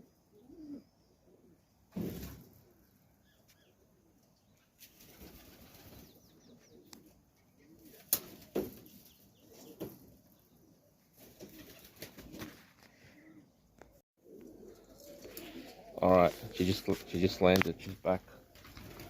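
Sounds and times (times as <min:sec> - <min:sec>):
pigeons cooing: 0:00.0 - 0:01.7, 0:05.0 - 0:19.0
wings flapping: 0:04.8 - 0:06.2, 0:07.8 - 0:10.0, 0:11.1 - 0:12.9, 0:14.4 - 0:19.0.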